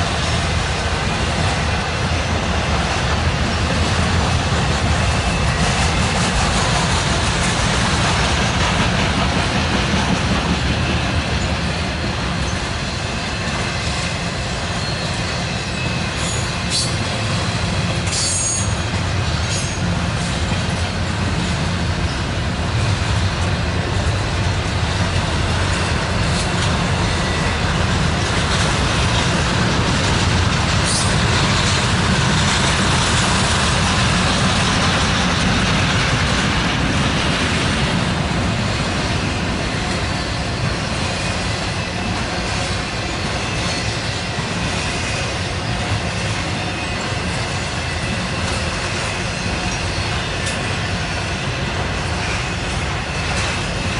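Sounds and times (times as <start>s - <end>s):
freight train rumbling and rattling: 0.0s - 53.9s
high-pitched wheel squeals: 14.7s - 17.4s, 18.1s - 18.9s.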